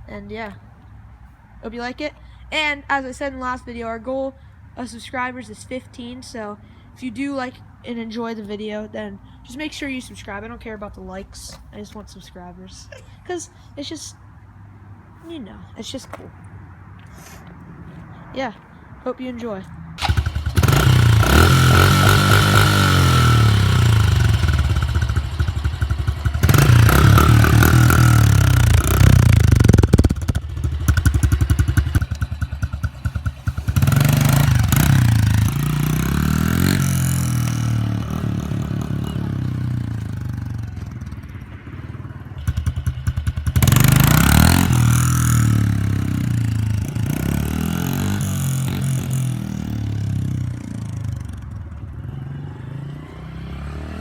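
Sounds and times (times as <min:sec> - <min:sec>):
dirt bike engine revving: 0:20.0 - 0:50.6, 0:52.2 - 0:54.0.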